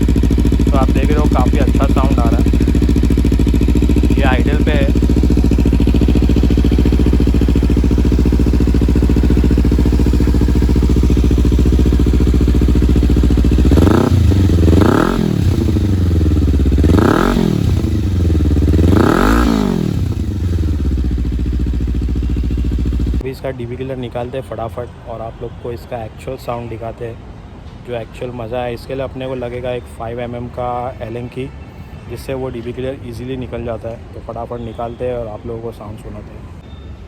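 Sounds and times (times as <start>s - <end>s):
motorcycle engine idling and revving: 0.0s - 23.2s.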